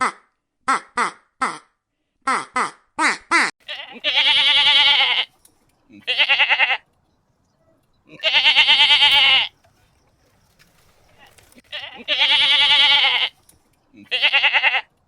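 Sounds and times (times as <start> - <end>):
goat bleating: 3.6 - 5.3, 5.9 - 6.9, 8.0 - 9.6, 11.2 - 15.0.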